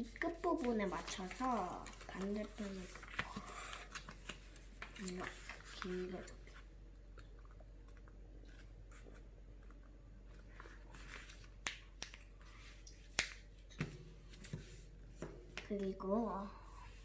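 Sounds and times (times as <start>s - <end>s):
paper being folded: 0.0s - 6.6s.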